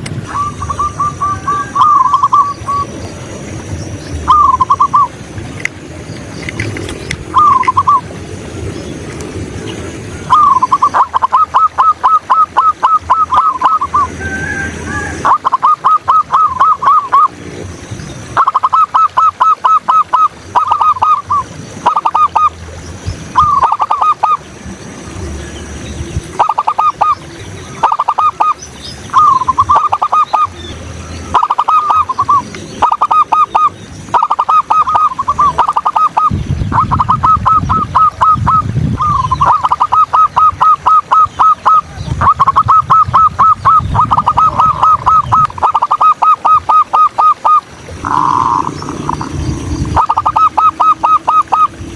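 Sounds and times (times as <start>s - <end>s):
doves cooing: 0.0s - 9.0s, 9.6s - 17.7s, 18.3s - 24.5s, 26.2s - 51.9s
low rumble: 47.9s - 50.6s.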